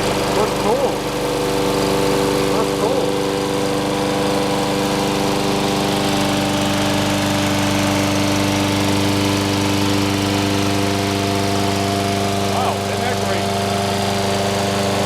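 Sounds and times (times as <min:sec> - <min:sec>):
push mower engine running: 0:00.0 - 0:15.0.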